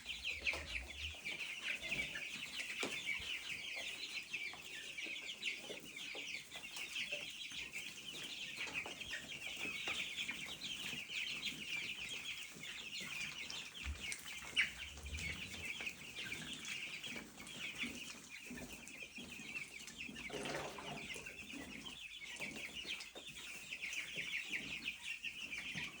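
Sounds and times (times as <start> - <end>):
chickens calling: 0.0 - 26.0.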